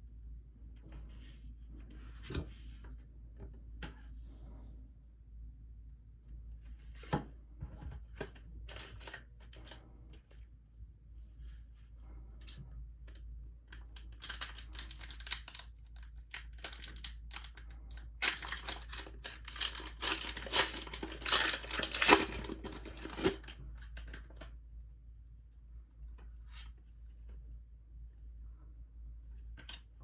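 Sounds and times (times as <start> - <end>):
plastic packaging crinkling: 14.2 - 24.2.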